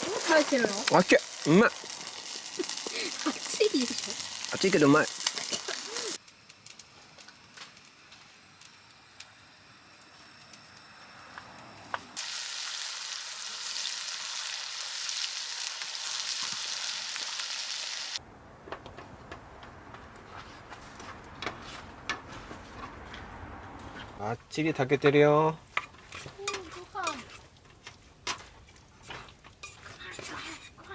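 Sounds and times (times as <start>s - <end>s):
food sizzling in a hot pan: 0.0s - 6.2s, 12.2s - 18.2s.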